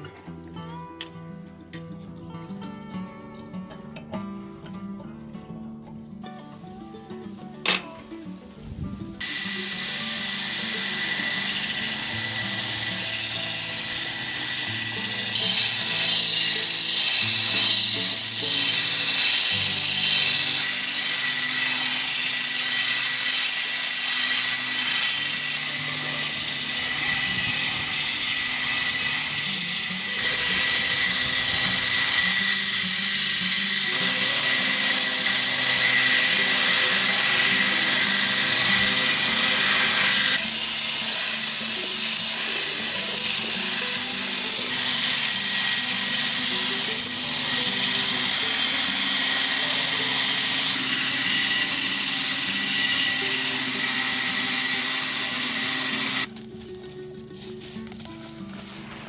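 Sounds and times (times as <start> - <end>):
background music: 0.0 - 59.0
power tool whining: 9.2 - 56.3.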